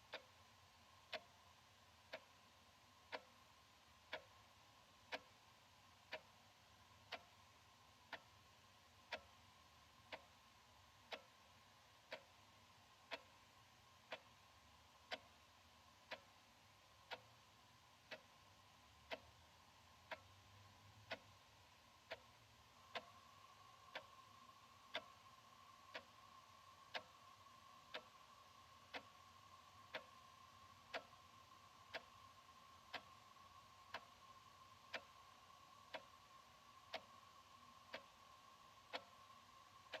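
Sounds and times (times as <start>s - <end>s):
wall clock ticking: 0.0s - 40.0s.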